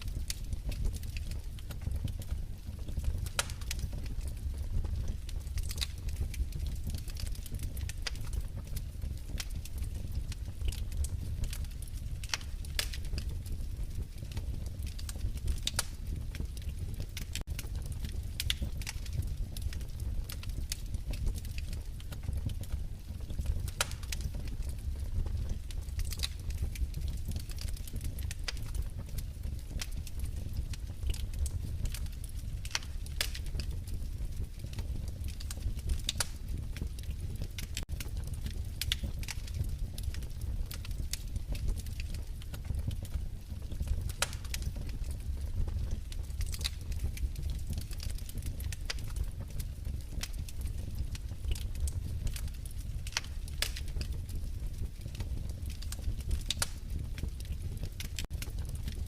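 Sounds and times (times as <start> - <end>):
low rumble of flames: 0.0 - 59.0
wood fire crackling: 0.0 - 59.0.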